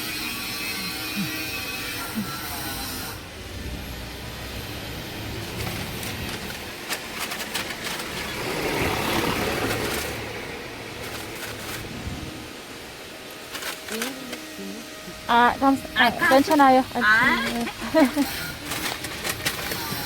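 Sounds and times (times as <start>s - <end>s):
street background noise: 0.0s - 20.0s
vehicle passing: 1.6s - 19.3s
short clicks and rustles: 5.6s - 10.2s, 17.4s - 20.0s.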